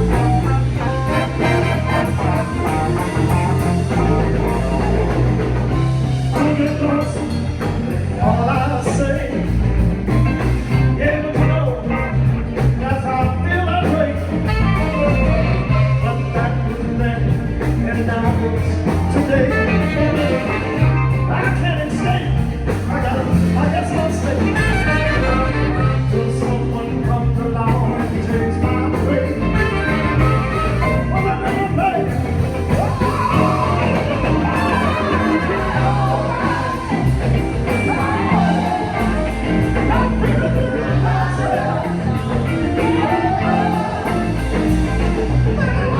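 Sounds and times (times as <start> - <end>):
bass line: 0.0 - 45.9
guitar: 0.0 - 45.9
person singing: 10.8 - 45.9.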